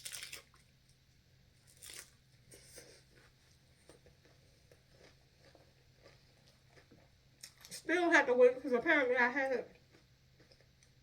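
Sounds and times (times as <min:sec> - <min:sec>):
faint crunching of food: 0:00.0 - 0:01.0, 0:01.6 - 0:07.9, 0:09.6 - 0:11.0.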